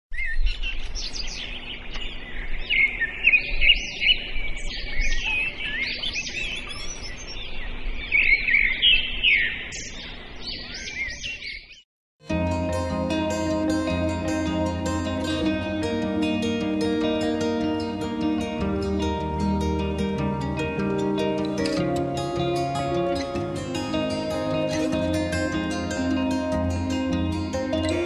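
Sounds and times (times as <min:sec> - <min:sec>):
small birds chirping: 0:00.1 - 0:11.8
plucked-string music: 0:12.2 - 0:28.0.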